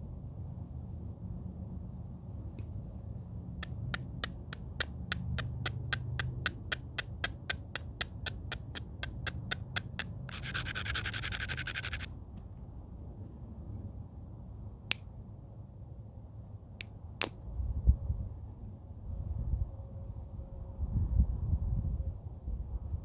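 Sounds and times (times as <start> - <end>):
stone tapping on stone: 3.6 - 12.1
gritty scraping of stone: 4.3 - 12.1.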